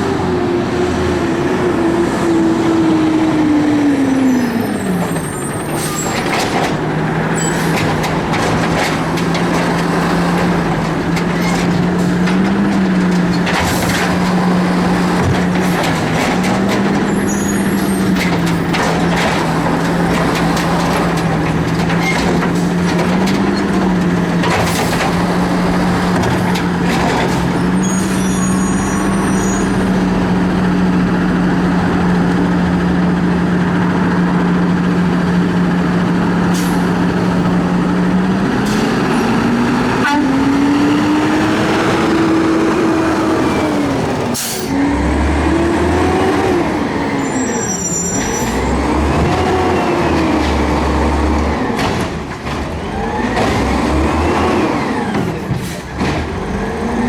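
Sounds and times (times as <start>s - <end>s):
garbage truck diesel engine: 0.0s - 57.0s
metal clanks: 5.7s - 28.3s.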